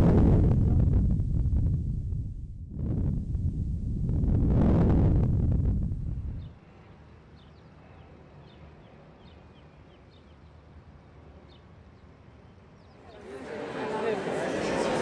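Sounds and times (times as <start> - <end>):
wind buffeting microphone: 0.0 - 6.6
faint birds chirping: 6.1 - 13.4.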